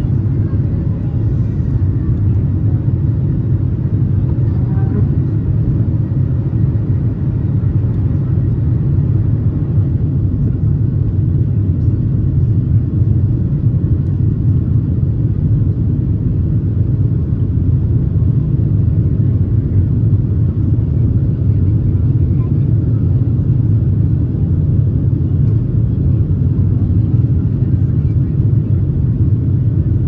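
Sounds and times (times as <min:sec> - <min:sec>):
jet engine rumble in cabin: 0:00.0 - 0:30.0.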